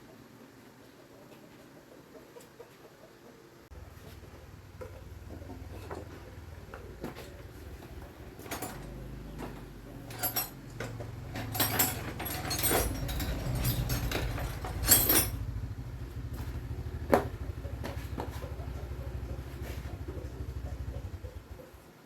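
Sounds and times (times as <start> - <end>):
handling clicks and clatters: 4.1 - 15.6.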